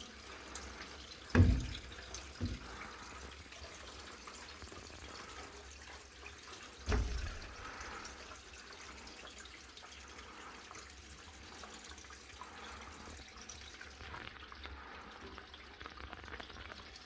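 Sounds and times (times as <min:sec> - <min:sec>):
faint running water: 0:00.0 - 0:17.0
water drips: 0:00.0 - 0:17.0.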